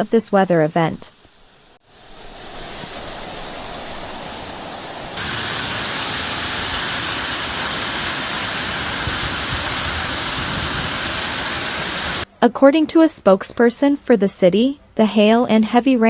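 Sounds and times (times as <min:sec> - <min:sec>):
running water: 0:01.1 - 0:12.2
heavy downpour rushing: 0:01.7 - 0:12.2.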